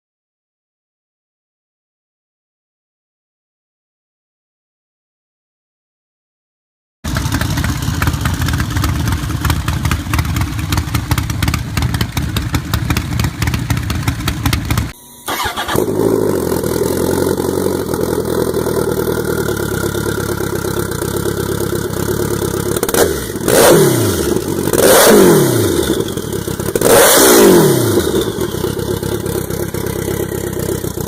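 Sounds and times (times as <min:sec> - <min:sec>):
motorcycle engine idling steadily: 0:07.1 - 0:31.0
motorcycle engine lumpy idle: 0:07.1 - 0:31.0.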